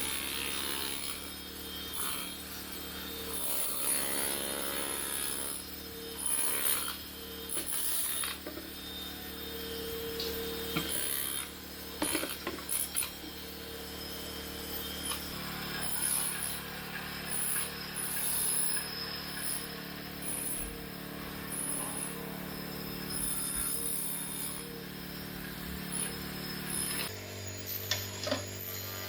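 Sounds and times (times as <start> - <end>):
scraping and grinding on concrete: 10.2 - 13.4.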